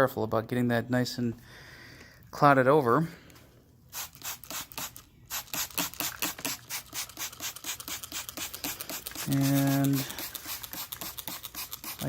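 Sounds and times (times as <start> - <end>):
sandpaper rubbing on paint: 4.0 - 12.0.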